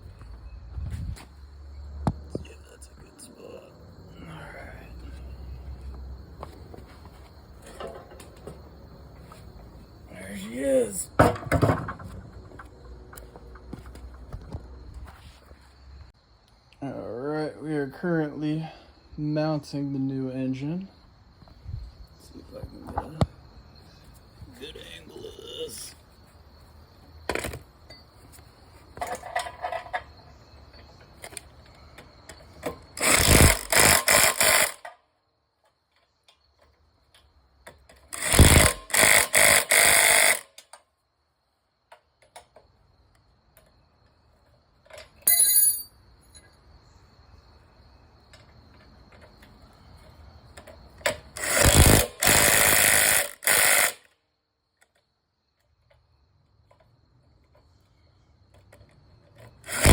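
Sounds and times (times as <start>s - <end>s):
tool clatter: 6.4s - 9.5s, 44.9s - 46.5s
impact wrench hammering bolts: 32.6s - 34.9s, 38.2s - 40.7s, 51.1s - 54.0s, 59.7s - 59.9s.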